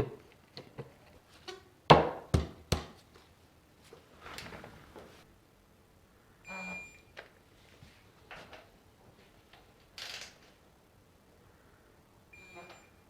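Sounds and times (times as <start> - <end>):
short electronic beep: 6.5 - 7.1, 12.4 - 13.0.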